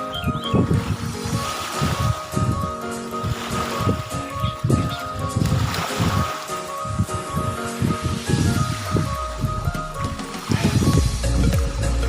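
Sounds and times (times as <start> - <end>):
music with pulsing bass beat: 0.0 - 12.0.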